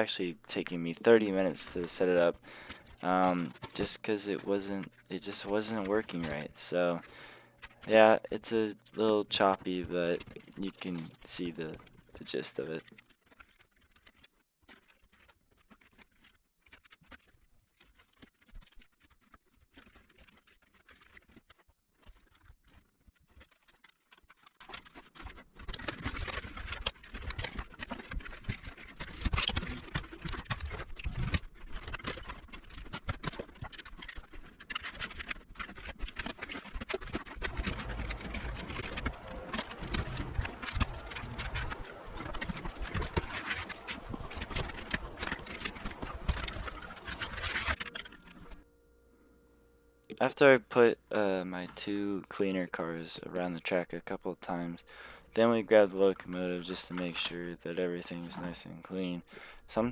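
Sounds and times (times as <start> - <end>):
faint scattered clicking: 23.8 - 48.6
model train cars rattling and rumbling: 37.4 - 48.6.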